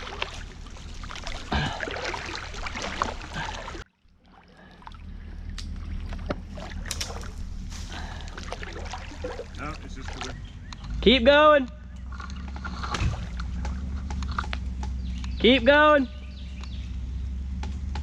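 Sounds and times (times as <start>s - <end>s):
water sloshing and splashing: 0.0s - 11.1s, 11.8s - 15.5s
low rumble: 0.0s - 18.0s.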